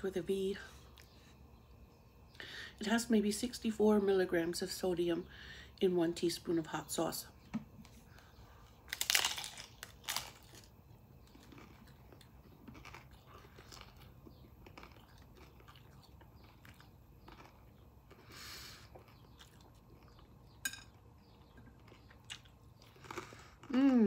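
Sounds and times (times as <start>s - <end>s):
crunchy chewing: 8.1s - 24.0s
crunchy bite: 8.8s - 20.2s, 21.9s - 24.0s.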